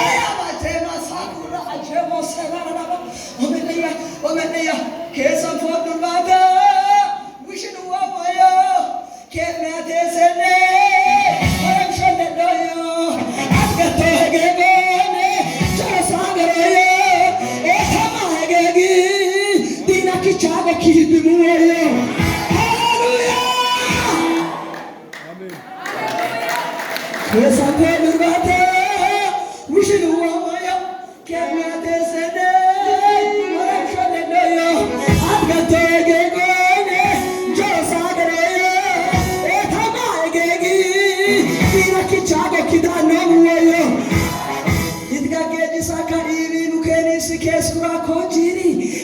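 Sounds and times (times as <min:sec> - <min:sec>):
musical accompaniment: 0:11.0 - 0:12.4, 0:13.0 - 0:25.0, 0:32.4 - 0:46.4
low drum beats: 0:35.1 - 0:35.9.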